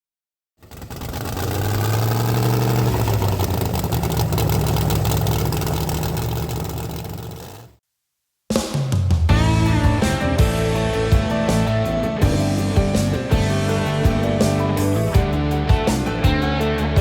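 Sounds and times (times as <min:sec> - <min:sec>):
car engine running: 0:00.6 - 0:07.8.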